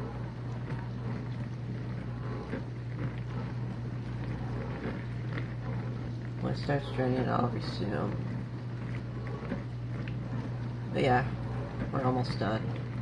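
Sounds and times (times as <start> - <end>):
dishwasher humming: 0.0 - 13.0
water swishing: 0.0 - 13.0.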